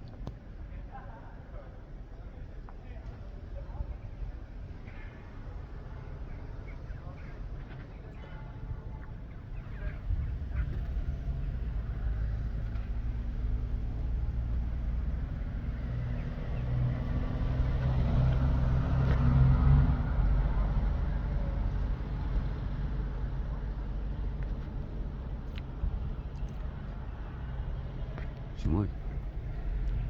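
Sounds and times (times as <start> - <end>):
heavy vehicle engine rumbling: 8.5 - 30.0.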